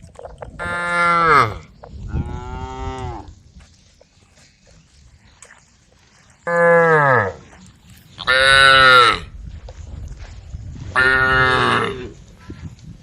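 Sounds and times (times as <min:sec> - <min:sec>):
cows mooing: 0:00.6 - 0:03.3, 0:06.4 - 0:07.4, 0:08.2 - 0:09.3, 0:11.0 - 0:12.2.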